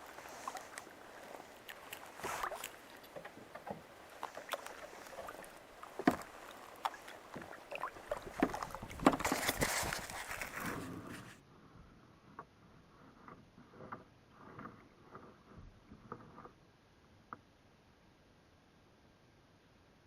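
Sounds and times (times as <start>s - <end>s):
paddle splashing in water: 0.0s - 11.4s.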